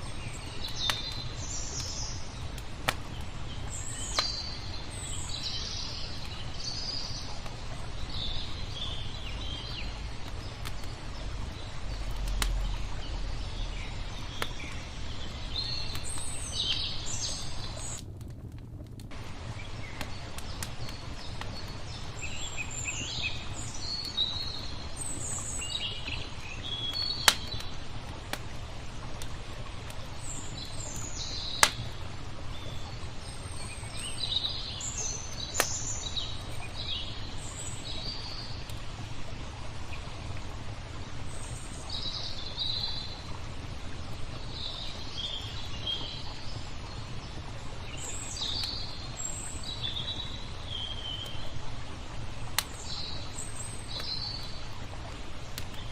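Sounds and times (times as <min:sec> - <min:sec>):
wood fire crackling and popping: 0:00.0 - 0:06.5, 0:09.4 - 0:37.0, 0:52.2 - 0:55.9
small birds chirping: 0:00.0 - 0:18.2, 0:19.1 - 0:27.8, 0:29.9 - 0:40.1, 0:41.2 - 0:51.6, 0:52.4 - 0:55.9.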